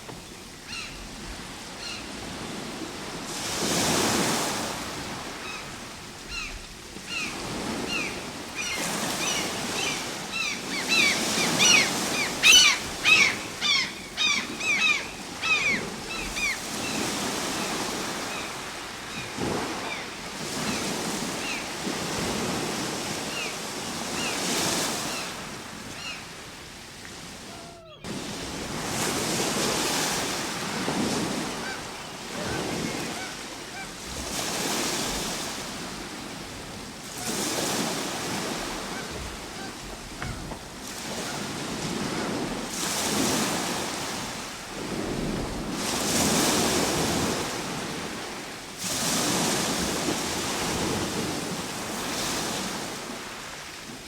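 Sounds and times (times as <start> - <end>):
ocean waves washing ashore: 0.0 - 54.0
flock of birds calling: 5.4 - 21.7.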